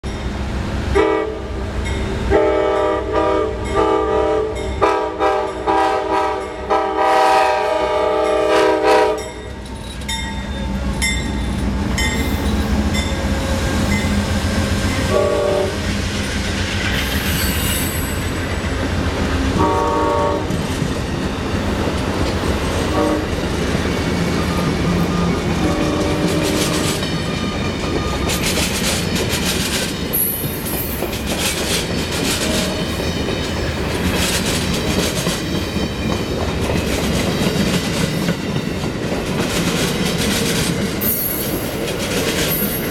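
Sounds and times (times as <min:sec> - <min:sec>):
train rumble: 0:00.0 - 0:42.9
locomotive air horn toots: 0:01.0 - 0:01.6, 0:02.3 - 0:09.4, 0:15.0 - 0:15.9, 0:19.6 - 0:20.6, 0:22.9 - 0:23.4, 0:25.1 - 0:27.0, 0:32.4 - 0:32.9.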